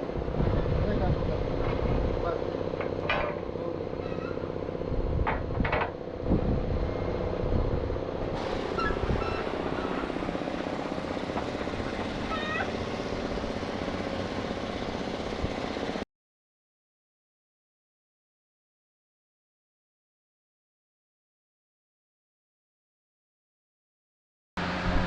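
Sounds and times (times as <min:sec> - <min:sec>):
short high squeaks: 0:04.0 - 0:04.5, 0:08.7 - 0:10.0, 0:12.2 - 0:12.8
machine running: 0:08.1 - 0:16.0.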